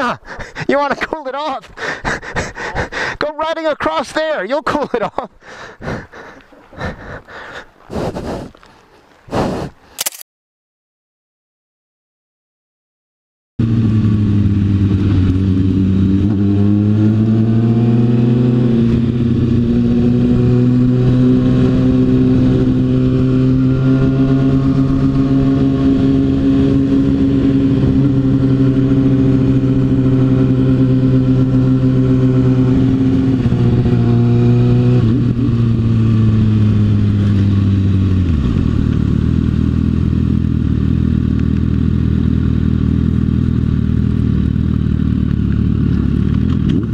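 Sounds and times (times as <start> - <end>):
motorcycle engine revving: 13.6 - 46.9.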